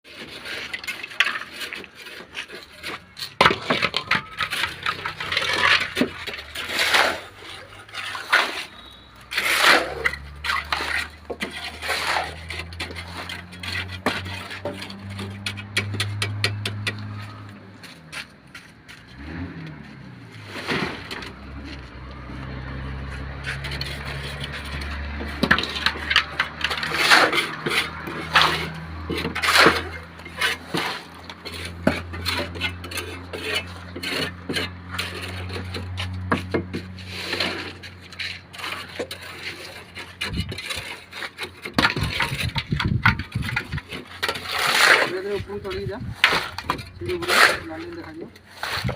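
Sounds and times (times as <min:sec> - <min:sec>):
hand tools scraping and clinking: 0:00.0 - 0:48.9.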